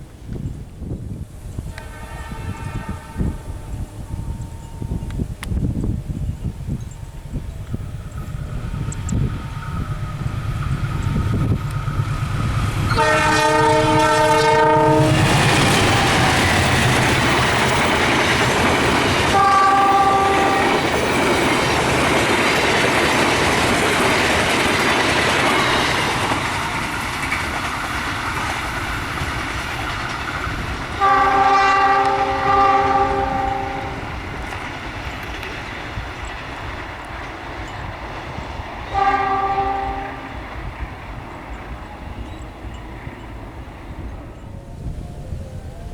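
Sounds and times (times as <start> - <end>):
locomotive horn blasts: 1.6 - 5.3, 12.8 - 21.8, 30.6 - 34.4, 38.9 - 40.6
train wheels clattering on rails: 1.6 - 44.6.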